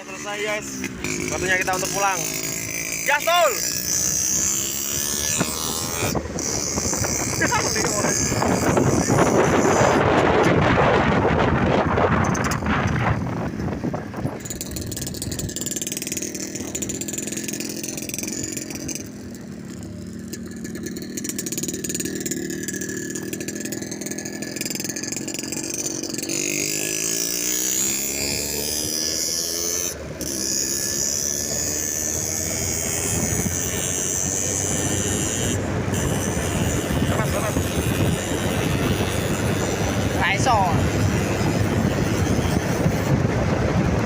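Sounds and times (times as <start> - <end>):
motorcycle engine running: 0.0 - 44.0
wind noise on microphone: 3.8 - 17.2, 31.5 - 44.0.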